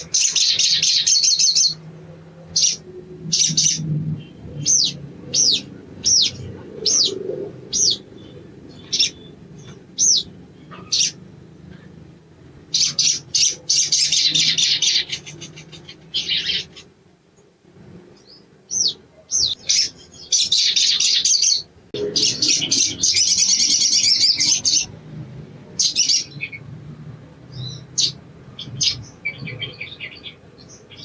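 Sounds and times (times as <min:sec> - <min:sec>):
bird chattering calls: 0:00.0 - 0:11.9, 0:12.7 - 0:16.9, 0:18.7 - 0:25.0.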